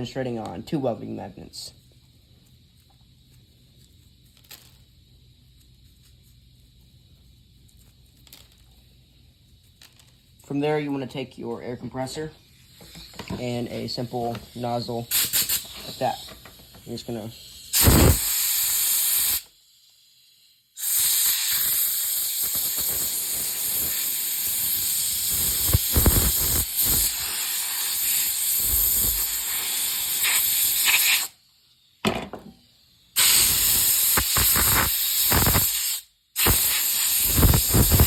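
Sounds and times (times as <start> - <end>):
compressed air hissing: 8.4 - 38.0.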